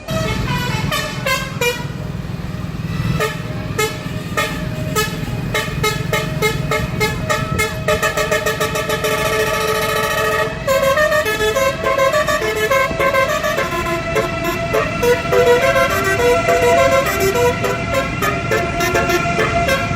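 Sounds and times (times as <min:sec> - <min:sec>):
low rumble: 0:00.0 - 0:12.3
train horn short toots: 0:00.0 - 0:19.9.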